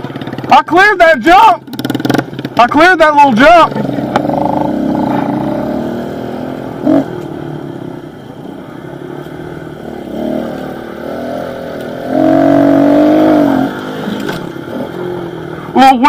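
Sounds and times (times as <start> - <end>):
small motorbike engine running: 1.6 - 2.7.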